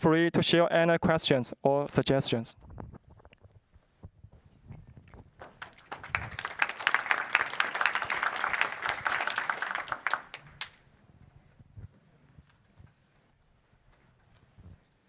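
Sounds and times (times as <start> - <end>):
audience applauding: 5.4 - 10.8.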